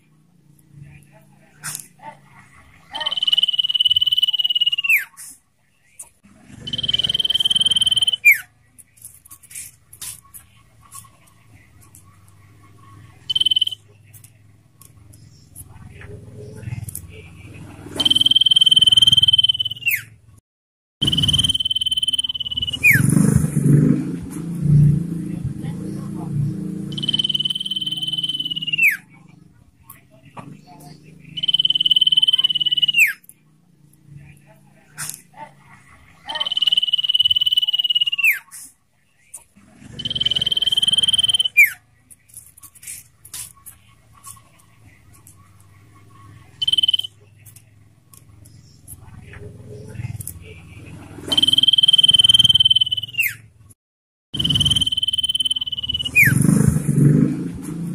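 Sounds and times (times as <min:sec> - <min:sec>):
bird trilling: 0:02.9 - 0:05.2, 0:06.5 - 0:08.5, 0:13.2 - 0:13.9, 0:17.9 - 0:20.2, 0:21.0 - 0:23.4, 0:26.9 - 0:29.2, 0:31.3 - 0:33.3, 0:36.2 - 0:38.5, 0:39.8 - 0:41.8, 0:46.5 - 0:47.2, 0:51.2 - 0:53.5, 0:54.4 - 0:56.7.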